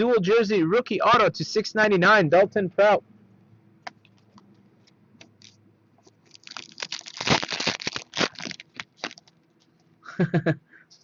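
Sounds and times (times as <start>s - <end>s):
plastic wrapper crinkling: 5.3s - 9.8s.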